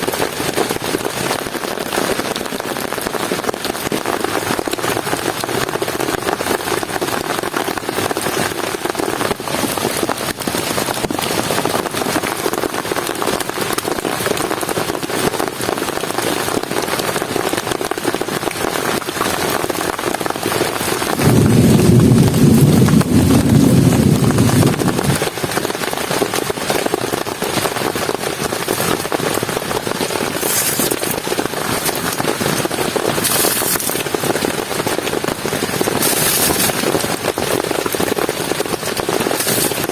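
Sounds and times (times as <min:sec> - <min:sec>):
heavy rain falling: 0:00.0 - 0:39.9
thunder rumble: 0:21.2 - 0:25.4.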